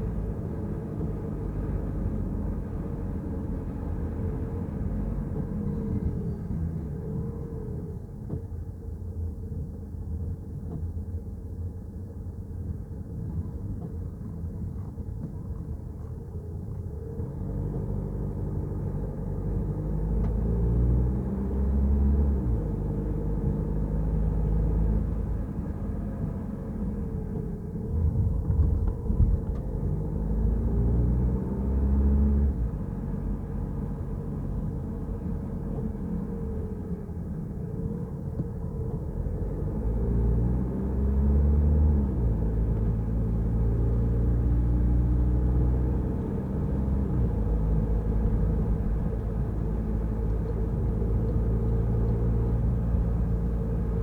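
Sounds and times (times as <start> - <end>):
car driving on wet road: 17.4 - 54.0.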